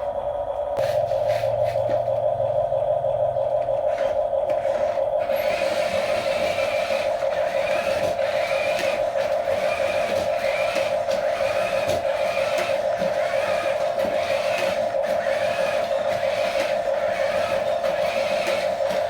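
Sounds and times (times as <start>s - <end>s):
fainter higher whine: 0.0s - 19.0s
toy electric motor whining: 3.9s - 19.0s.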